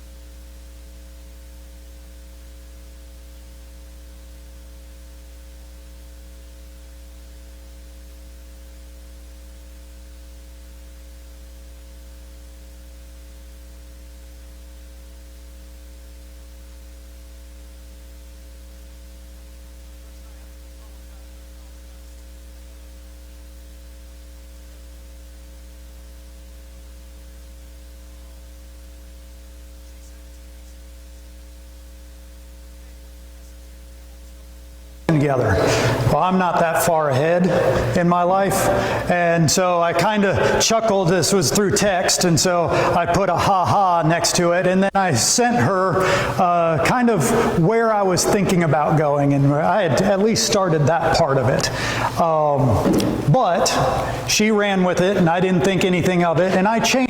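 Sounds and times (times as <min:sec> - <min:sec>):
electrical mains hum with hiss: 0:00.0 - 0:57.0.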